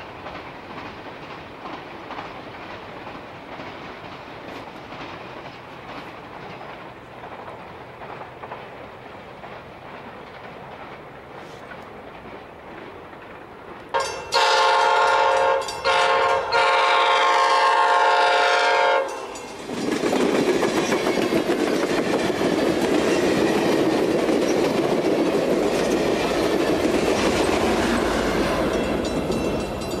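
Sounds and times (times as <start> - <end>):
train wheel and rail clatter: 0.0 - 30.0
train air horn blasts: 14.0 - 19.3.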